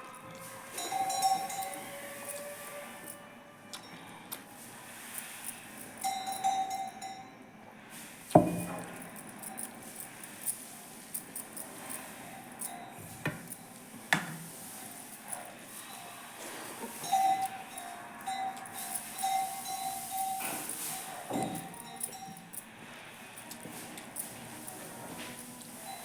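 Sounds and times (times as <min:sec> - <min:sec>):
dishes and utensils clinking: 0:00.0 - 0:03.2, 0:11.2 - 0:22.7.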